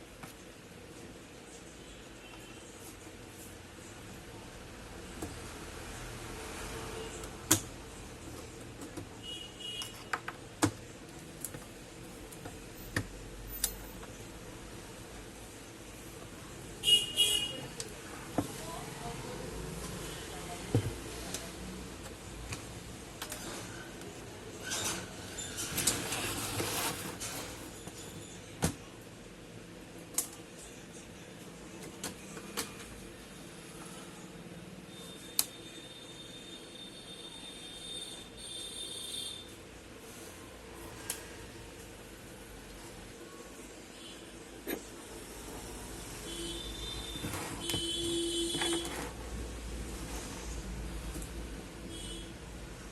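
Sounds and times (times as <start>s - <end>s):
rustling handling noise: 23.3s - 28.2s.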